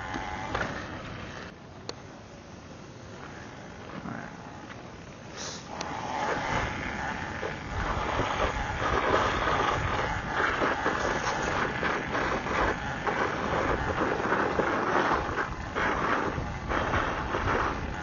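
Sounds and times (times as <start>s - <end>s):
wind on microphone: 5.7s - 18.0s
tyre rumble: 5.8s - 18.0s.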